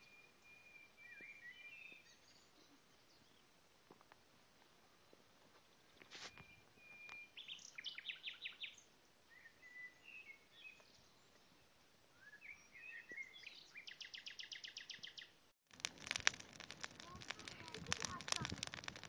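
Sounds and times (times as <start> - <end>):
songbirds singing: 0.0 - 3.6, 5.6 - 15.4
wood fire crackling: 15.7 - 19.0.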